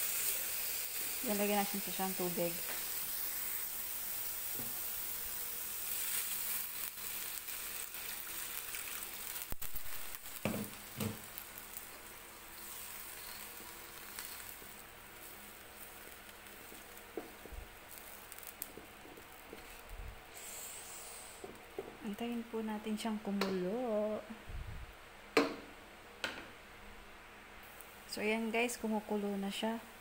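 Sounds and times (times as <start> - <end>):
food sizzling in a wok: 0.0 - 22.6.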